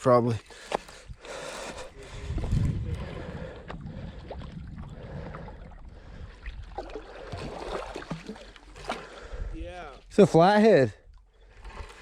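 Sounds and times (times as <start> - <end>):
water sloshing and trickling: 2.5 - 10.2, 11.0 - 12.0.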